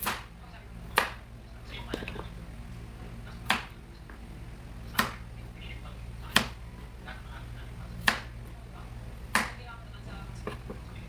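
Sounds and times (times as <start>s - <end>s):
knife chopping on cutting board: 0.0s - 0.3s, 0.9s - 1.2s, 3.4s - 3.8s, 5.0s - 5.2s, 6.3s - 6.6s, 8.0s - 8.3s, 9.3s - 9.6s
steady low hum: 0.0s - 11.0s.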